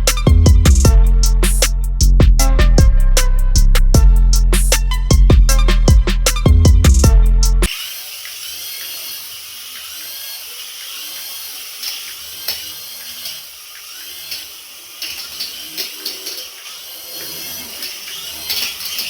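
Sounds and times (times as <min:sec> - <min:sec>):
toy motor whirring: 0:00.0 - 0:02.1, 0:07.2 - 0:19.0.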